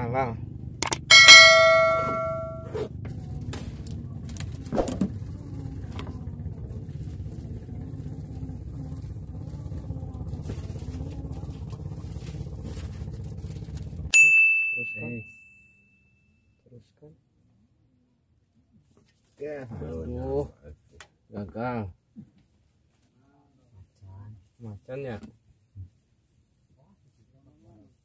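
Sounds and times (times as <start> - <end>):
low motor-like hum: 0.0 - 14.1
high ting: 1.0 - 2.7
bright chime: 1.1 - 2.7, 14.2 - 15.9.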